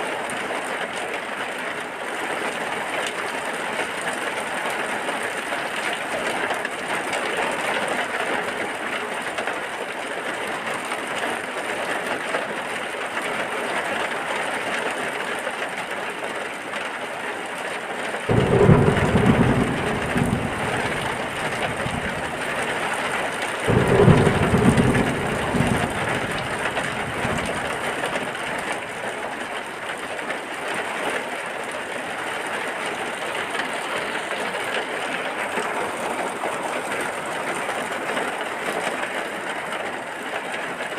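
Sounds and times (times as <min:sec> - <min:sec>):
heavy rain: 0:00.0 - 0:40.9
low thunder rumbles: 0:18.3 - 0:29.6.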